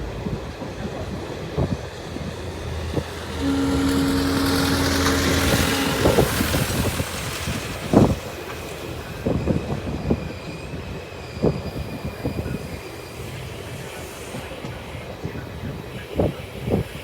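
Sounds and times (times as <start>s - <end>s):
train wheels clanking: 1.5s - 15.1s
high wheel squeal: 2.6s - 14.6s.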